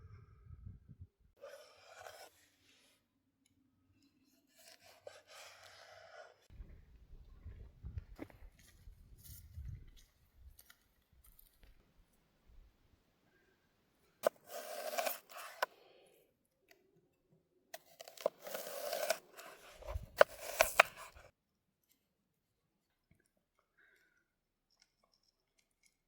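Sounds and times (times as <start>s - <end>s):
crisp cutting of food: 14.2s - 15.7s, 17.8s - 21.3s.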